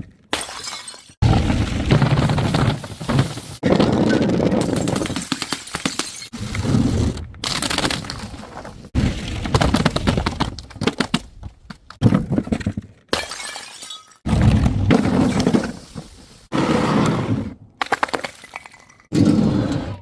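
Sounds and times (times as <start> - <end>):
glass bottles smashing: 0.3 - 1.2, 4.6 - 6.3, 13.1 - 14.3.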